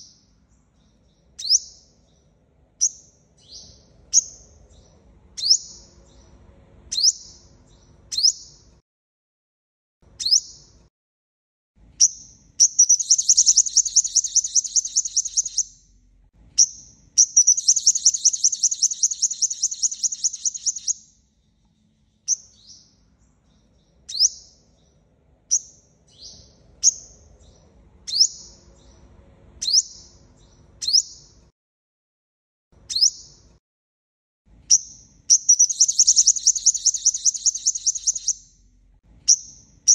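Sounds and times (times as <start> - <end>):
bird trilled song: 0.0 - 8.8, 10.1 - 10.8, 12.0 - 31.5, 32.8 - 33.6, 34.6 - 39.9
sunbird calling: 12.0 - 15.8, 16.6 - 21.0, 34.7 - 38.5.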